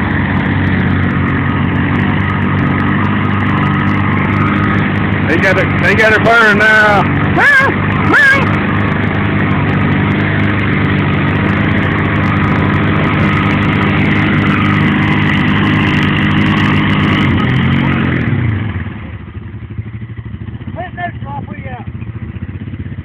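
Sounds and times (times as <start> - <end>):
atv engines revving: 0.0 - 23.0
wheels spinning: 0.0 - 23.0.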